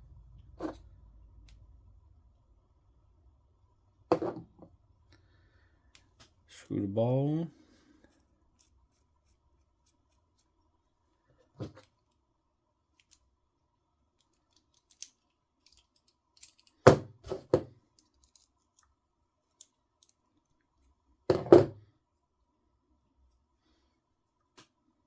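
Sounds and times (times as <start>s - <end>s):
tools knocking on workbench: 4.1s - 4.5s, 21.3s - 21.8s.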